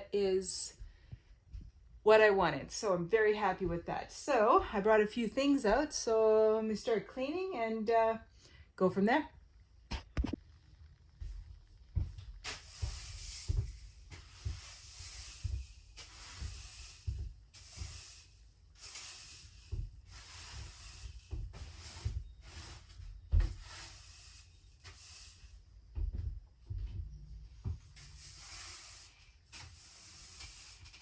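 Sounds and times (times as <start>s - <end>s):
broom sweeping a floor: 11.2s - 31.0s.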